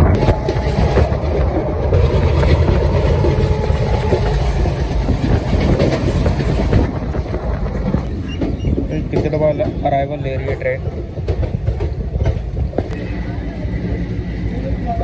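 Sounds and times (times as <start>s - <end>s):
train rumble: 0.0s - 15.0s
train wheels clattering: 0.0s - 15.0s.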